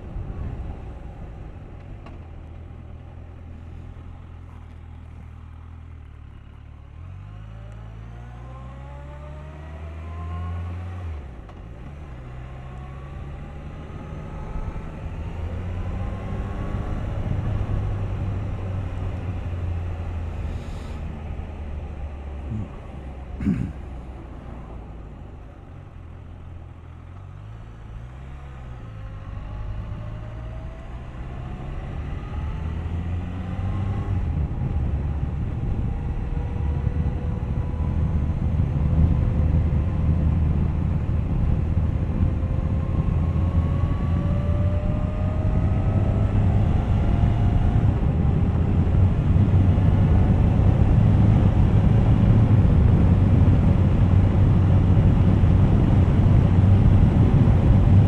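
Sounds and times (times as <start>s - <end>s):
motorcycle engine accelerating: 0.0s - 58.0s
wind noise: 32.1s - 58.0s.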